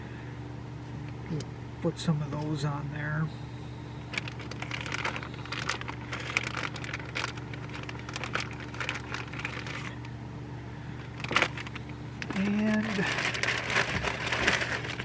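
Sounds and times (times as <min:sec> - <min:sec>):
low hum: 0:00.0 - 0:15.0
plastic packaging crinkling: 0:04.1 - 0:10.1, 0:11.1 - 0:15.0.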